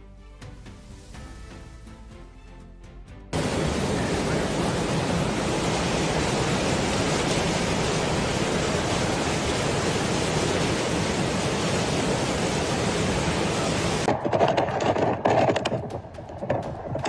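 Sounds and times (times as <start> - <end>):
water rushing: 3.4 - 14.1.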